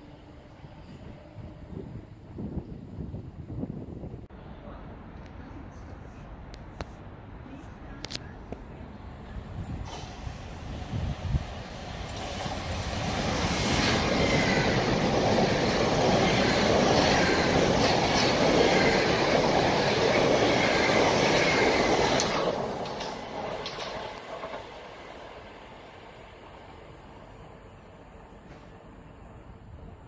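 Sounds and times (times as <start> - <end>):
train wheels rumbling: 9.2 - 30.0.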